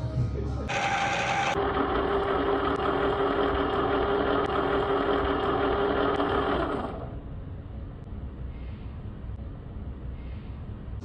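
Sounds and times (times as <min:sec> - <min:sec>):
small electric motor humming: 0:00.7 - 0:07.2.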